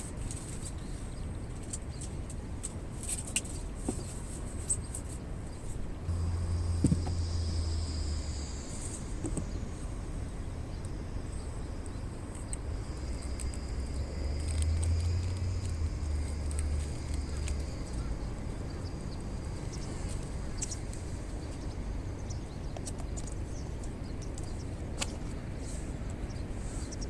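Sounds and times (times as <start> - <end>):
low rumble: 5.9 - 22.8
insects trilling: 6.1 - 25.0
faint clicks: 11.8 - 19.0.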